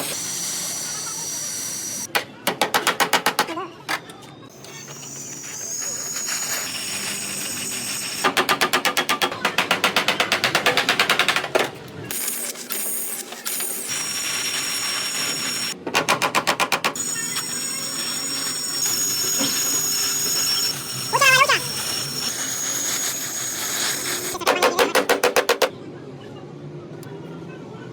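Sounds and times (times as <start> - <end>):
steady high whine: 0.0 - 2.1, 4.5 - 8.4, 17.0 - 24.4.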